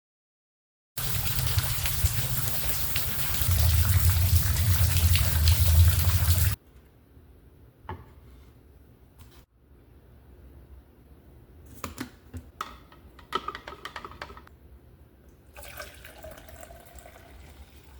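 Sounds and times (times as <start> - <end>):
steady rain hiss: 1.0 - 6.6.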